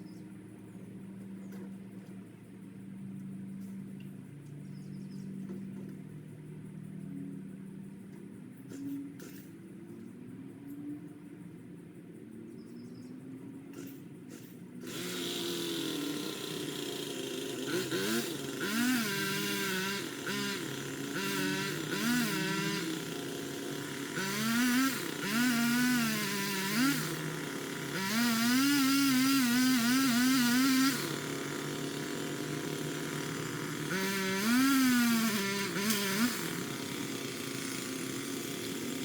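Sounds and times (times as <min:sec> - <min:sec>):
pole saw revving: 0:13.8 - 0:39.0.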